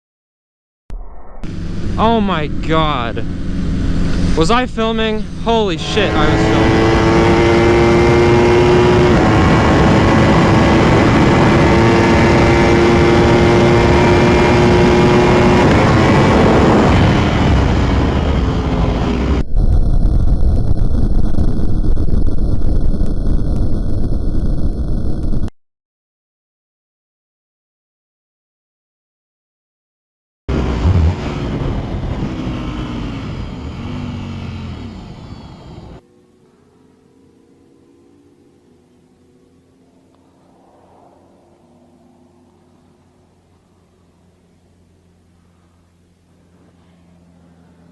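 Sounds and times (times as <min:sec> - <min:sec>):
road noise: 0:01.1 - 0:23.4, 0:30.5 - 0:47.9
motorcycle engine running: 0:01.4 - 0:25.2, 0:30.5 - 0:47.9
wind noise: 0:06.1 - 0:25.5.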